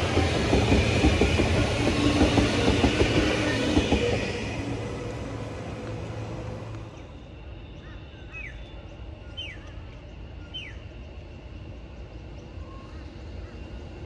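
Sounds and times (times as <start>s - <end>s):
steady low rumble: 0.0s - 7.2s
passing train: 0.0s - 14.0s.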